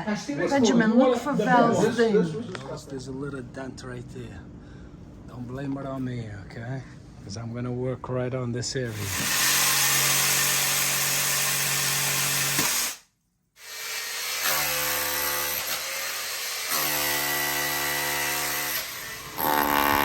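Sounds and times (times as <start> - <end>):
electric power tool running: 8.9 - 13.0, 13.6 - 20.0.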